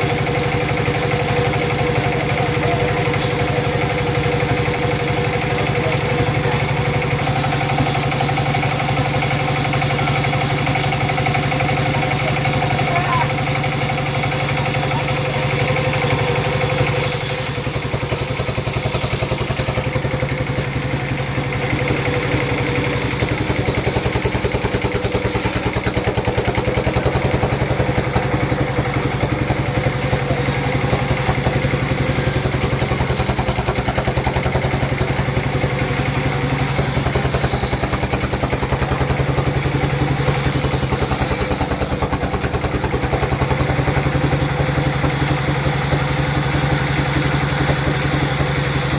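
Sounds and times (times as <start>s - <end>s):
sawmill machinery humming: 0.0s - 48.9s
high machinery hiss: 0.1s - 48.9s.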